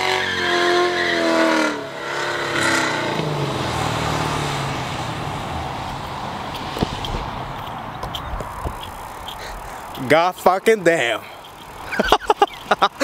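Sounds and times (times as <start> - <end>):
car engine revving hard: 0.0 - 6.4
steady rushing noise: 4.3 - 13.0.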